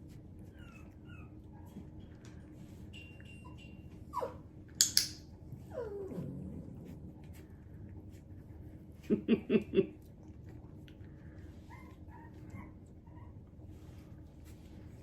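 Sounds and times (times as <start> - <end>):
dog yipping: 3.3 - 4.4
dog whining: 3.4 - 4.5, 5.6 - 6.9.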